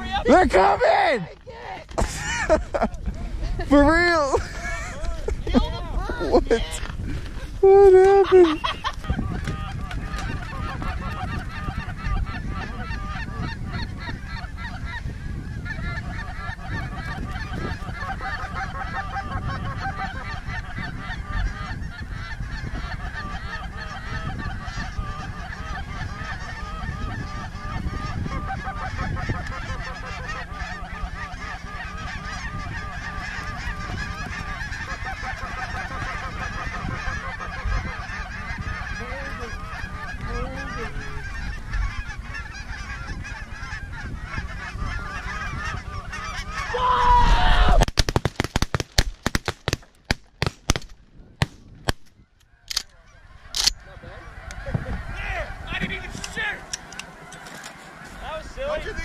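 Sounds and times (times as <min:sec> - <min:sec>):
geese honking: 0:07.6 - 0:47.7, 0:52.2 - 0:59.0
loud falling goose call: 0:15.6 - 0:47.9.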